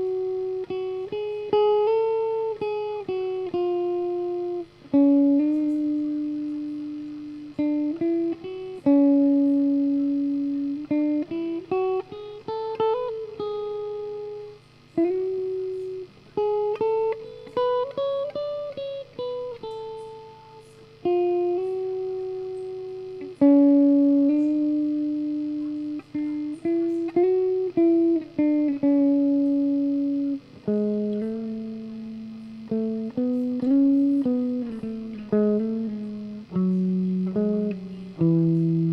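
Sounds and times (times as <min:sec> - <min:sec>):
solo guitar melody: 0:00.0 - 0:38.9.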